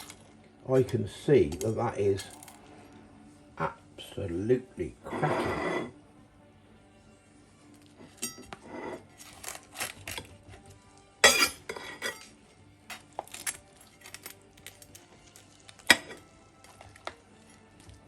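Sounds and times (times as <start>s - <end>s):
knife clinking and scraping dish: 5.1s - 5.9s, 8.0s - 10.2s, 11.2s - 12.4s, 15.8s - 16.3s.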